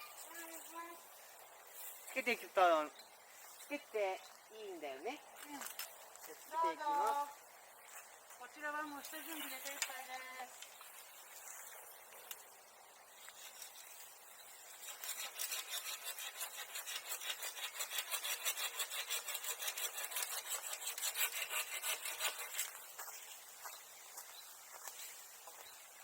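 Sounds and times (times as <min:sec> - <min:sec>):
hand saw cutting wood: 0:14.7 - 0:22.8.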